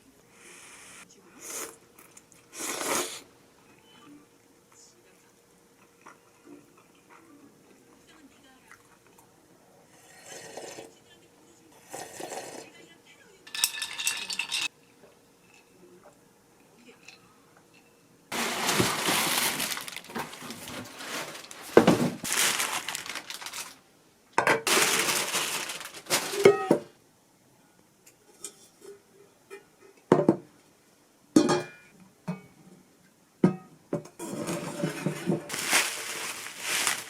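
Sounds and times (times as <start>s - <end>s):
dishes and utensils clinking: 13.5s - 14.7s, 31.4s - 32.6s.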